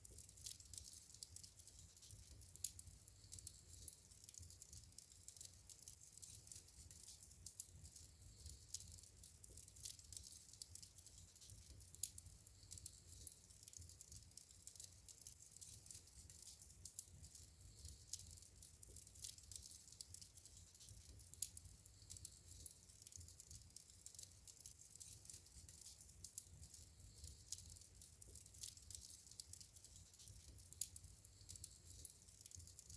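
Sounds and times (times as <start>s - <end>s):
wood fire crackling: 0.0s - 32.9s.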